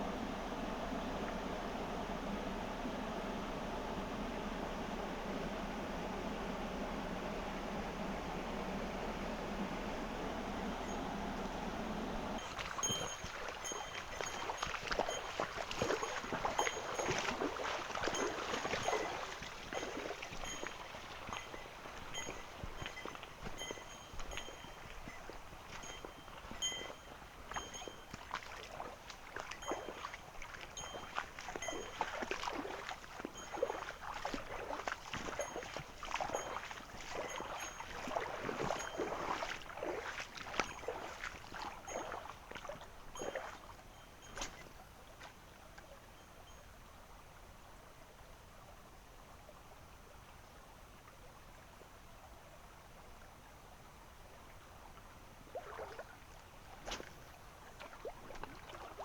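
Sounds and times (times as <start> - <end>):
small stream rushing: 0.0 - 59.0
splashing of stream water: 12.2 - 46.1, 55.5 - 59.0.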